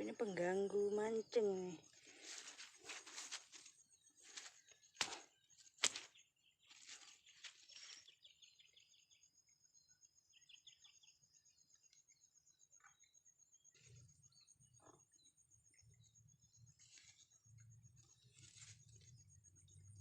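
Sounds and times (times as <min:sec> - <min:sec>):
faint bird chirps: 0:00.0 - 0:20.0
rustling: 0:02.0 - 0:08.1, 0:18.3 - 0:19.1.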